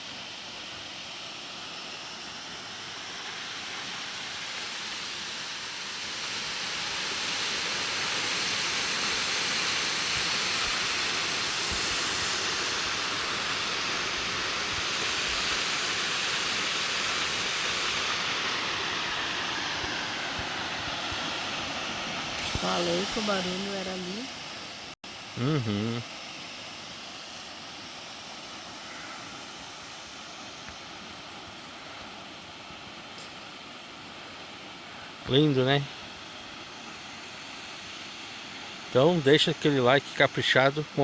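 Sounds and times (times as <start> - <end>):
waterfall rushing: 2.6 - 24.1.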